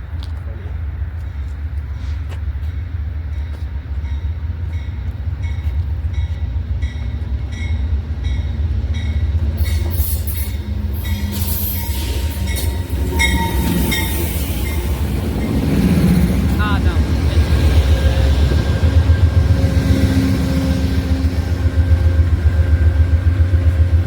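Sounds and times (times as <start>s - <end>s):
faint thin squeal: 9.7s - 14.4s.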